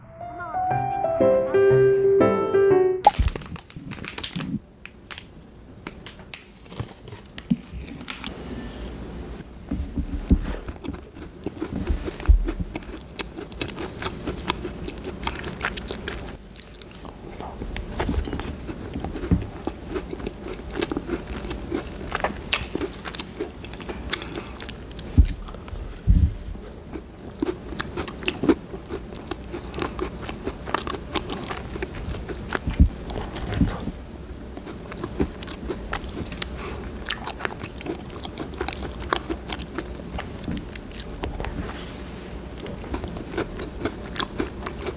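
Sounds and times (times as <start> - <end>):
crunching cookie bites: 3.1 - 8.3, 10.1 - 25.8, 26.6 - 41.8, 42.5 - 44.9
chewing clicks and crackles: 10.7 - 25.8, 26.7 - 41.8, 42.6 - 44.9.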